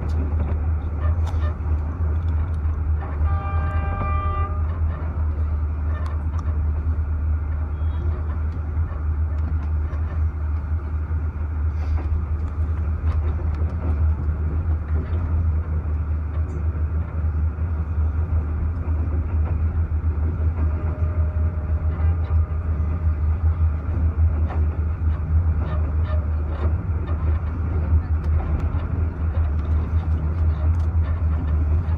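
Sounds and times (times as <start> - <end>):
passenger train rumbling: 0.0 - 31.9
train horn: 3.0 - 5.0, 20.7 - 22.9.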